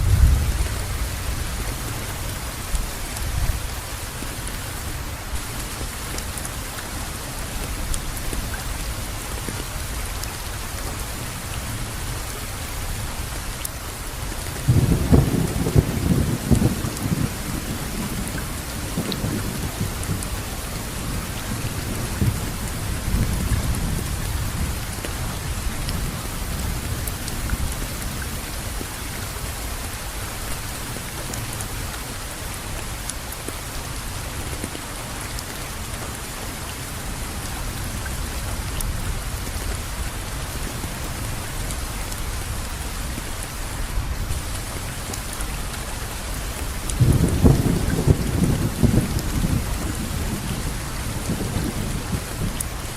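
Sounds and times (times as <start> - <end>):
low rumble of thunder: 0.0 - 3.9, 14.6 - 28.8, 46.8 - 52.9
steady rainfall: 0.0 - 52.9.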